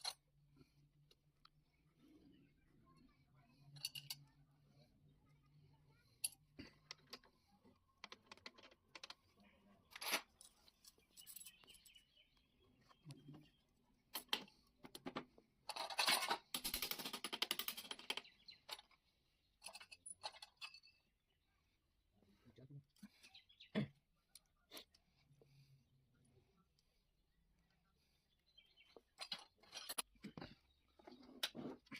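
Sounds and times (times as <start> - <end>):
metal parts and tools clinking: 0.0 - 0.2, 3.6 - 4.3, 8.0 - 12.0, 14.1 - 19.0, 19.6 - 21.1, 29.2 - 31.9.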